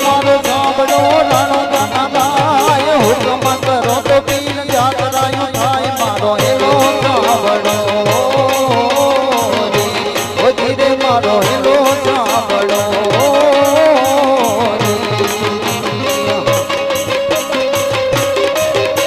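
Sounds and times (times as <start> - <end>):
banjo melody: 0.0 - 19.0.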